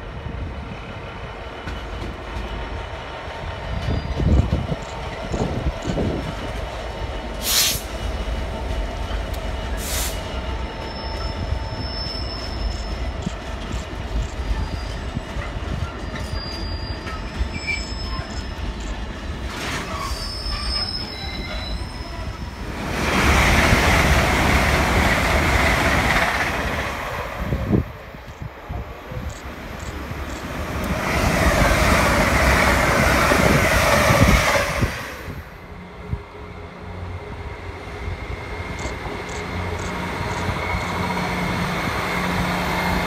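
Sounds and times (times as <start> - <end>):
freight train rolling past: 0.0 - 43.0
passenger train passing: 0.0 - 43.0
wheels squealing: 10.3 - 18.9, 19.6 - 22.5.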